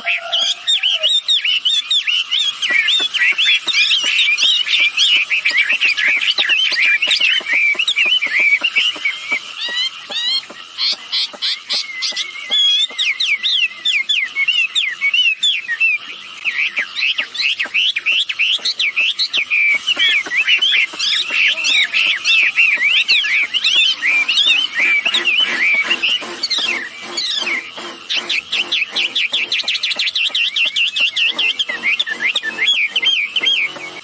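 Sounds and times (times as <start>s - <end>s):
bird chattering whistled notes: 0.0s - 34.0s.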